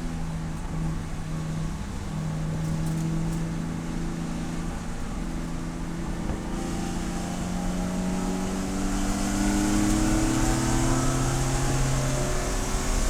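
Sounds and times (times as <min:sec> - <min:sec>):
race car engine running: 0:04.6 - 0:13.0.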